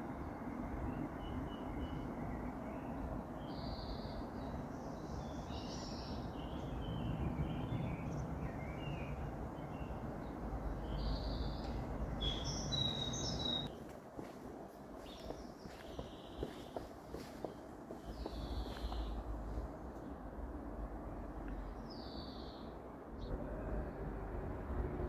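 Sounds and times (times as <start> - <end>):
birds chirping and whistling: 10.9 - 13.8, 15.0 - 19.2.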